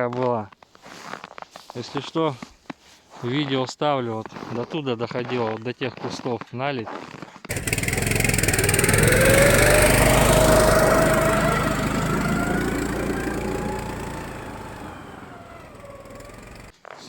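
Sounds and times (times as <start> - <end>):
small single-cylinder engine: 7.5 - 16.7.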